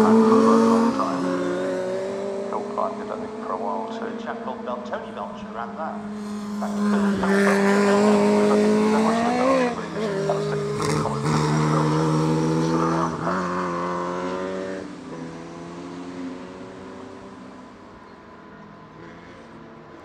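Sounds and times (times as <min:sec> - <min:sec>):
racing car engines passing: 0:00.0 - 0:20.0.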